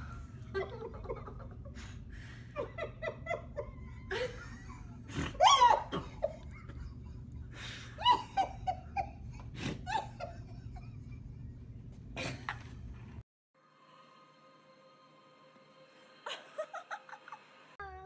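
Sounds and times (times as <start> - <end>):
person laughing: 0.4 - 2.0, 2.6 - 12.7, 16.3 - 17.5.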